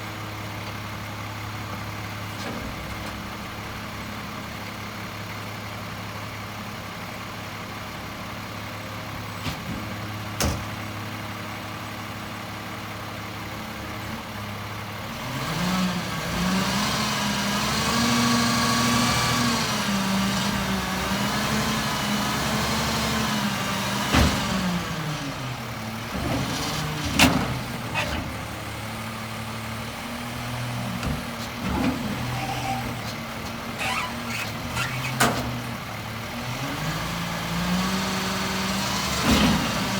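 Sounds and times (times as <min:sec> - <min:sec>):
truck diesel engine: 0:00.0 - 0:39.9
hydraulic whine: 0:31.6 - 0:35.7.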